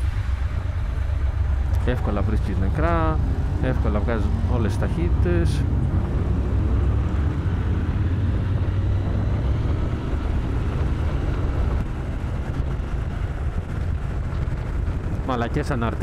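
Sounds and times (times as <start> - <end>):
motorcycle engine droning: 0.0 - 16.0
road noise: 0.0 - 16.0.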